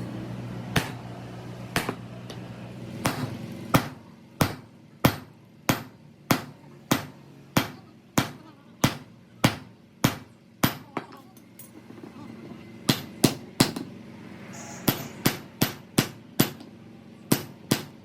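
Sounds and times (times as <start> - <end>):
hammer striking metal: 3.0 - 10.8, 14.6 - 16.7
steady hum: 11.6 - 18.0.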